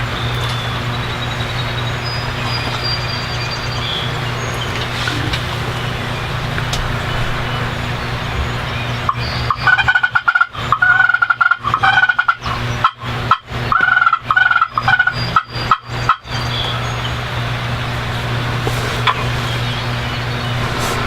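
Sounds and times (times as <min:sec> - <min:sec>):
low hum and hiss: 0:00.0 - 0:10.0, 0:15.1 - 0:21.0
turkey yelps: 0:08.8 - 0:16.8.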